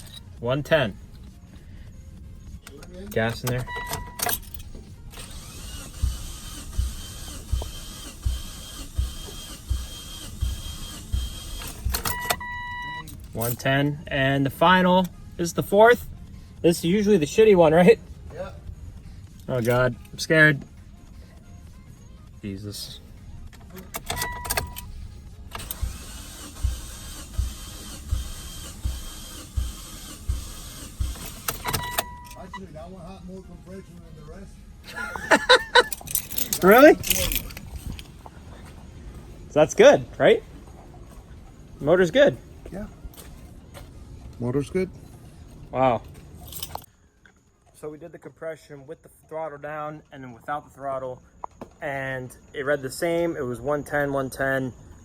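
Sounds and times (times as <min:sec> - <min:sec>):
starter motor cranking engine: 0:02.8 - 0:13.4, 0:25.5 - 0:32.4
two-tone beep: 0:03.6 - 0:04.4, 0:11.2 - 0:13.1, 0:24.1 - 0:24.8, 0:31.6 - 0:32.7.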